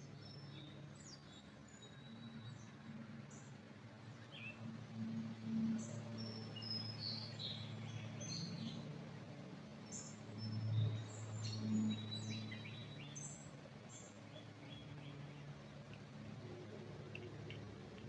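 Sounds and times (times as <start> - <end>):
songbirds chirping and whistling: 6.2 - 8.8, 9.8 - 15.2.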